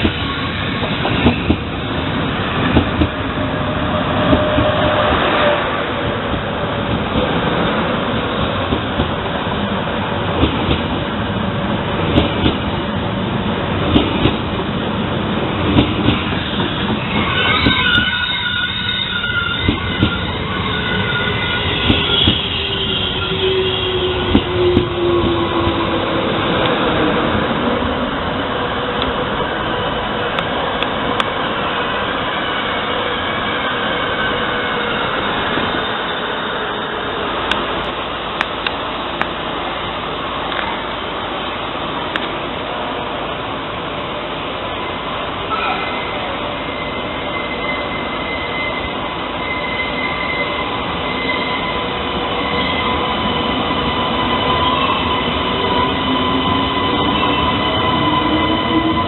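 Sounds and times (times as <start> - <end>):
train running past: 0.0 - 59.0
high squealing tones: 16.4 - 26.4, 45.5 - 59.0.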